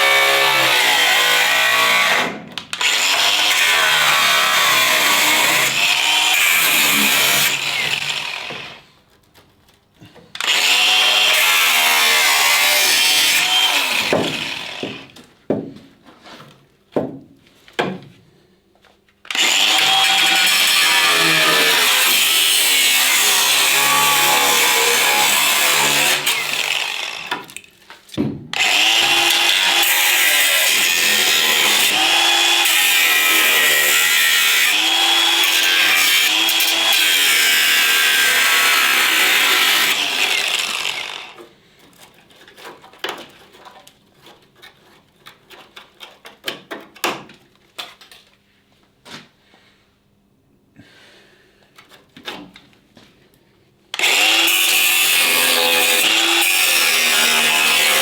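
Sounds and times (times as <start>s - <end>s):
angle grinder cutting metal: 0.0s - 8.8s, 10.4s - 15.1s, 19.3s - 27.5s, 28.6s - 41.4s, 54.0s - 58.0s.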